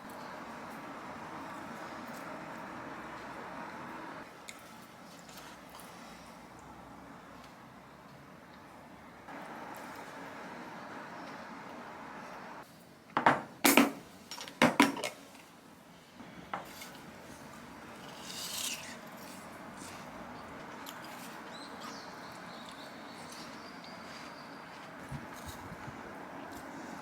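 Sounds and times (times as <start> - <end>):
steady background hiss: 0.0 - 27.0
kitchenware knocks and clinks: 13.2 - 15.2.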